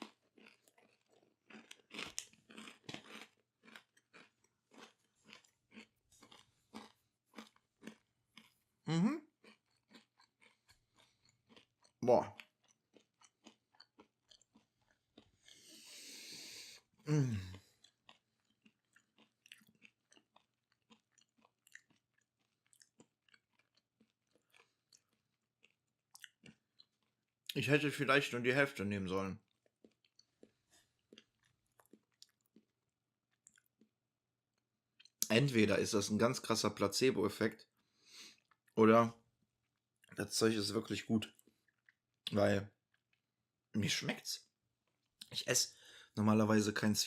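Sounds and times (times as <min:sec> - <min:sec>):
person chewing crunchy rusk: 0:00.0 - 0:27.5, 0:29.4 - 0:34.0.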